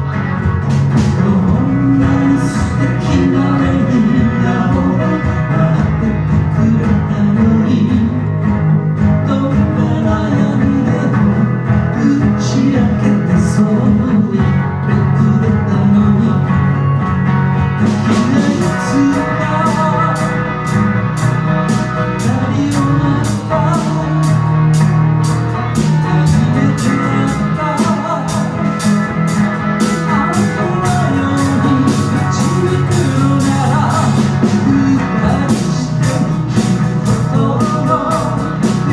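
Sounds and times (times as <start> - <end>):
live band playing: 0.0 - 38.9.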